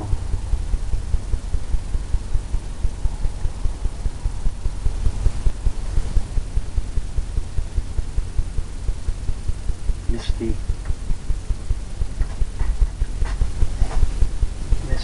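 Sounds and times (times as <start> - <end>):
brush thumping on canvas: 12.1 - 14.9.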